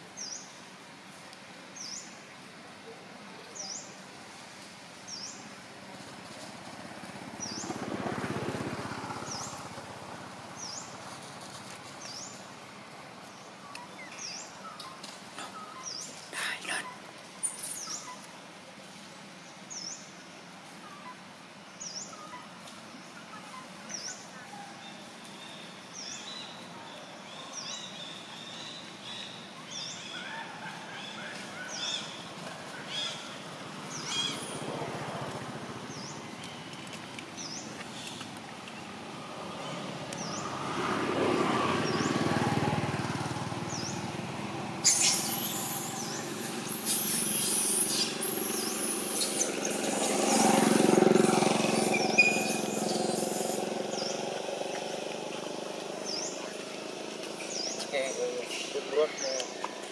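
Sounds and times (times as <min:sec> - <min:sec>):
vehicle passing: 0:06.3 - 0:12.4, 0:31.3 - 0:59.9
bird high chirp: 0:44.8 - 0:50.2, 0:51.7 - 0:54.2
loud hiss: 0:44.8 - 0:50.6.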